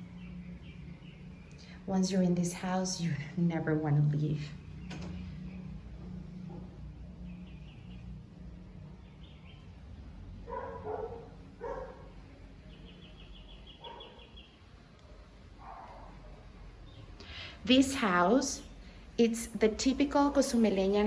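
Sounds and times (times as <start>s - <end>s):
birds chirping: 0.0s - 21.0s
dog barking: 10.4s - 12.2s, 13.8s - 14.4s, 15.6s - 16.4s.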